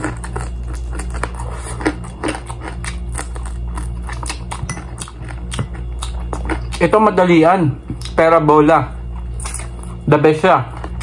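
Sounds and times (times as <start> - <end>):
person chewing crispy food: 0.0 - 8.2, 8.9 - 10.1, 10.7 - 11.0
low hum: 0.0 - 11.0.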